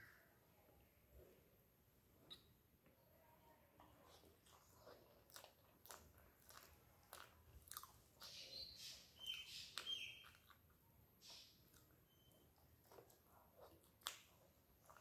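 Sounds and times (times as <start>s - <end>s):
wet chewing and lip smacks: 3.9s - 15.0s.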